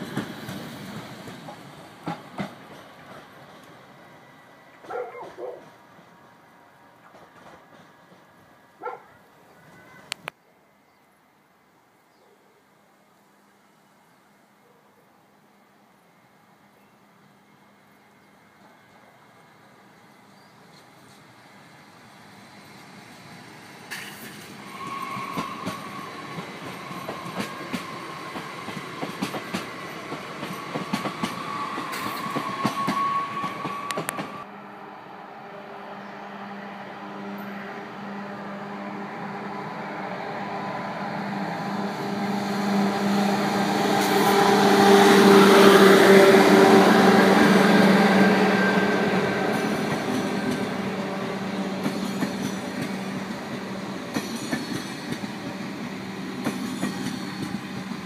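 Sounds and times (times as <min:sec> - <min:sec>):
electric train passing: 0:00.0 - 0:09.0, 0:15.4 - 0:58.0
high-speed train passing: 0:00.0 - 0:10.4, 0:15.3 - 0:58.0
wheels clicking over rail joints: 0:51.8 - 0:55.6.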